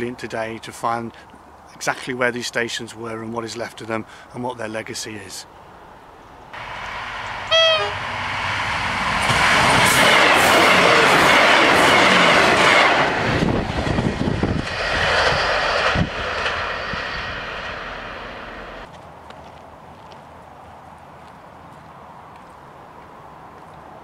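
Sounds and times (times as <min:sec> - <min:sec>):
train rushing past: 0:06.6 - 0:18.9
train horn: 0:07.4 - 0:08.2
train wheels knocking: 0:09.2 - 0:16.5.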